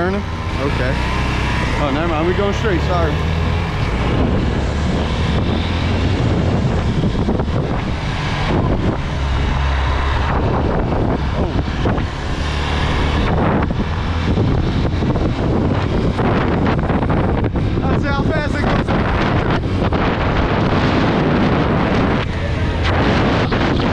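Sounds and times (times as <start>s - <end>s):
dirt bike engine running: 0.0s - 8.0s
wind buffeting microphone: 0.0s - 23.9s.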